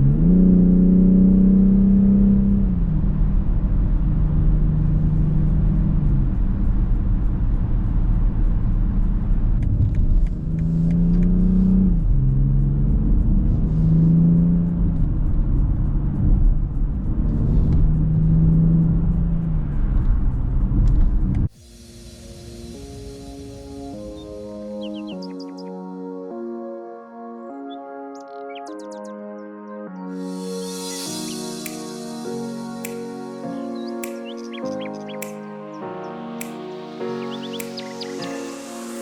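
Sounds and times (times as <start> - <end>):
car engine accelerating and upshifting: 0.0 - 21.5.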